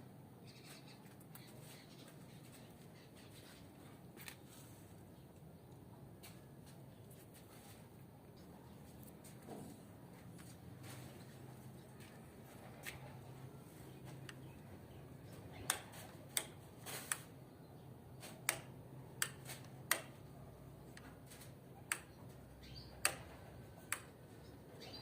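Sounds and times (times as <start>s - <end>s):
birds clicking and tapping: 10.2s - 25.0s.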